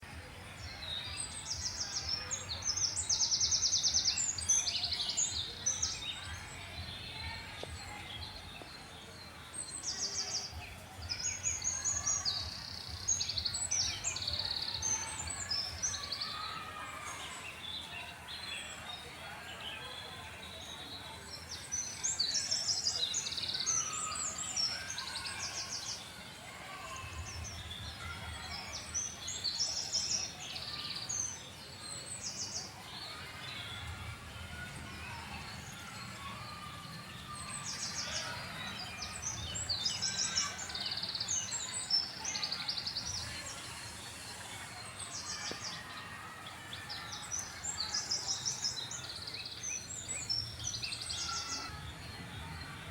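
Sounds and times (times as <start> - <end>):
faint background noise: 0.0 - 52.9
birds singing trilled phrases: 0.6 - 18.4, 46.6 - 52.9.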